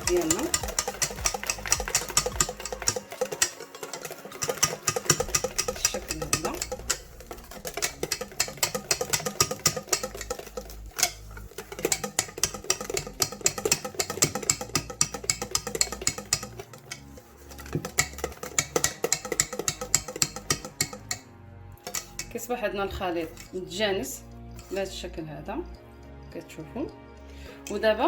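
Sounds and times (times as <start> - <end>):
utensil tapping a mixing bowl: 0.0 - 22.4.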